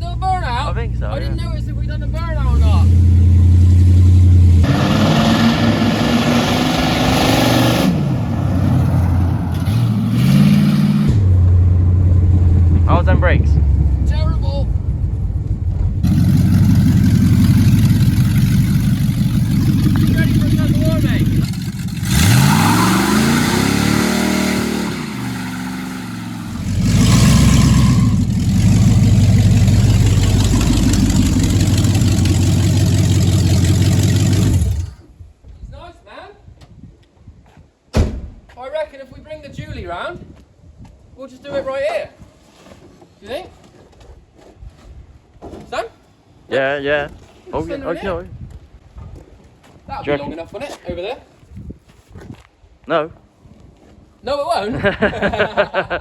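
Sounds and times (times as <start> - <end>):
car engine revving: 2.0 - 35.0.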